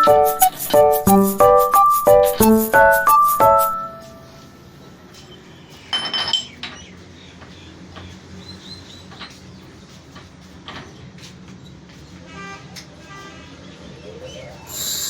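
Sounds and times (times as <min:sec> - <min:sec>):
metal tools clinking: 0:05.9 - 0:06.6.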